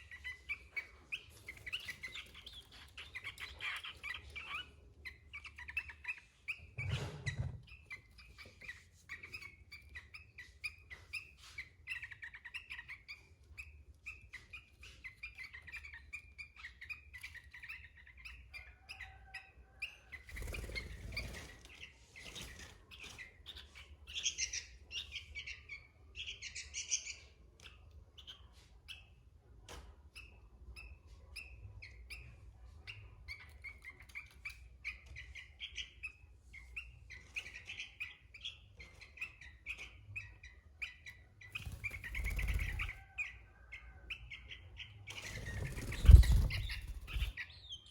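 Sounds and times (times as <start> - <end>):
bird chirping and whistling: 45.2 - 47.9.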